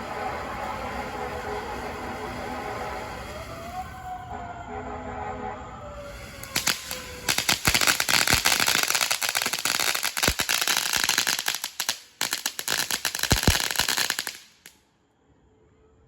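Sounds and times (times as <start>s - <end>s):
distant emergency siren: 0.0s - 9.3s, 15.2s - 16.0s
firework crackling pops and bangs: 6.0s - 14.8s.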